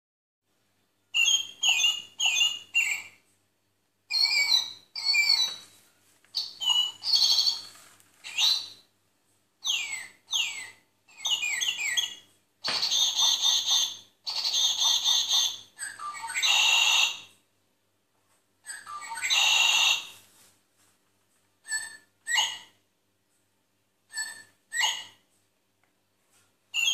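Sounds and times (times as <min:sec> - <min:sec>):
bird-like chirps: 0:01.0 - 0:03.2, 0:04.1 - 0:05.8, 0:06.4 - 0:08.9, 0:09.6 - 0:17.4, 0:18.6 - 0:20.2, 0:21.6 - 0:22.8, 0:24.1 - 0:25.2
sliding whistled calls: 0:01.2 - 0:03.2, 0:04.1 - 0:05.8, 0:06.4 - 0:08.8, 0:09.6 - 0:17.3, 0:18.7 - 0:20.2, 0:21.6 - 0:22.7, 0:24.1 - 0:25.2.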